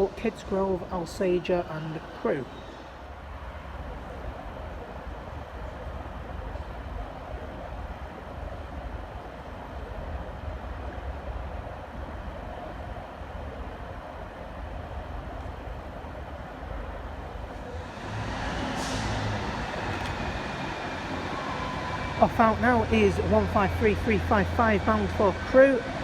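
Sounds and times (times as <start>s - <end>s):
diesel train engine running: 7.7s - 26.0s.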